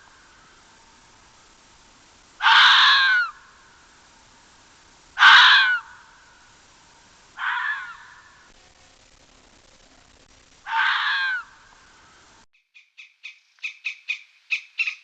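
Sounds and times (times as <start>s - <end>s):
bird giving harsh calls: 2.4s - 3.5s, 5.2s - 6.0s, 7.4s - 8.5s, 10.7s - 11.6s, 12.8s - 15.0s.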